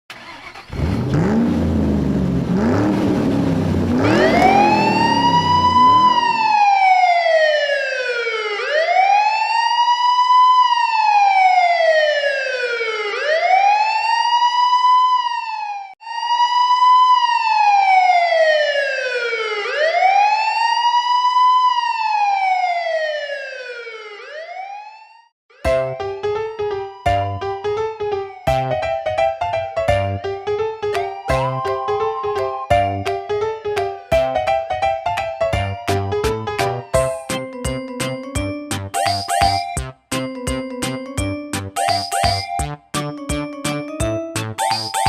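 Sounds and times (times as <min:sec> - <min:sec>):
electronic siren wailing: 0:03.5 - 0:25.3, 0:31.0 - 0:33.1.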